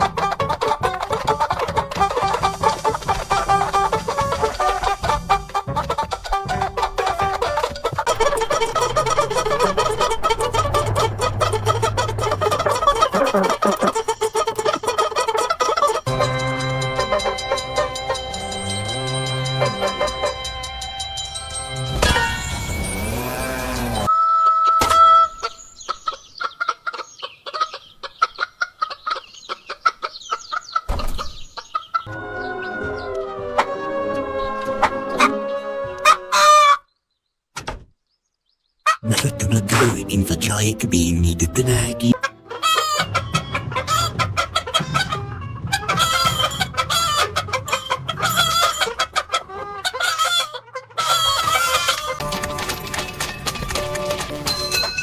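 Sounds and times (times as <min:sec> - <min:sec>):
chicken clucking and squawking: 0:00.0 - 0:16.3, 0:24.2 - 0:36.9, 0:42.0 - 0:52.2.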